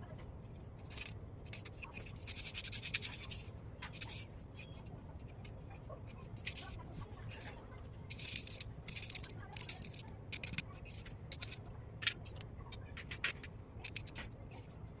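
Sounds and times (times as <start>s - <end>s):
chalk crunching and crumbling: 8.1s - 11.6s.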